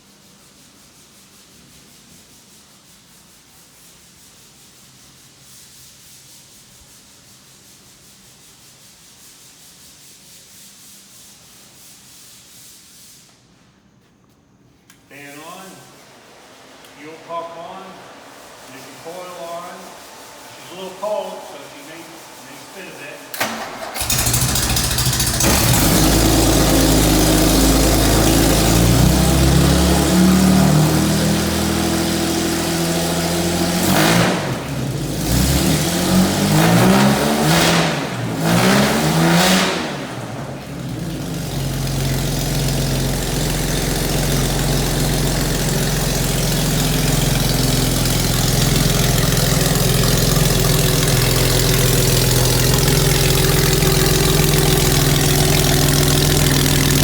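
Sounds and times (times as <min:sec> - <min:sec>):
car engine revving and idling: 0:21.8 - 0:57.0.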